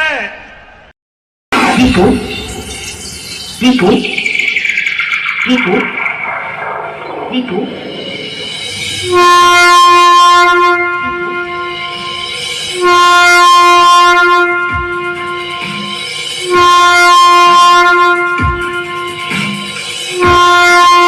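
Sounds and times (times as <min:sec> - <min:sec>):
deep falling bass sweep: 0:05.4 - 0:12.8
train horn blasts: 0:09.0 - 0:21.0.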